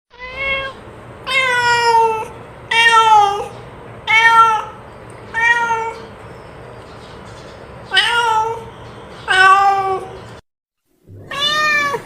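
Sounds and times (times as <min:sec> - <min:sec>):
cat meowing: 0:00.1 - 0:03.5, 0:04.1 - 0:06.1, 0:07.9 - 0:10.2, 0:11.1 - 0:12.0.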